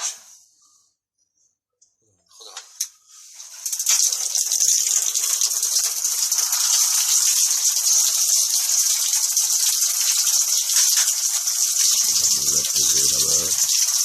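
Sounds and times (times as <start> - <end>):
running water hiss: 3.0 - 14.0.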